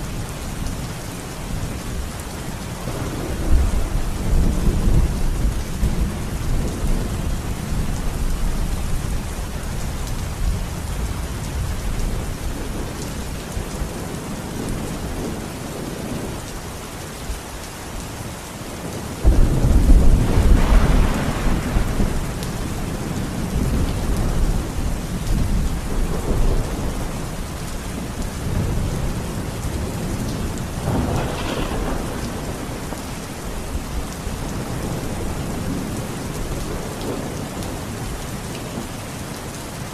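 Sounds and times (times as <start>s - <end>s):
steady rain: 0.0s - 39.9s
thunder rumbling: 1.6s - 16.4s, 19.2s - 38.0s
loud thunderclap: 19.2s - 24.6s, 28.4s - 33.2s.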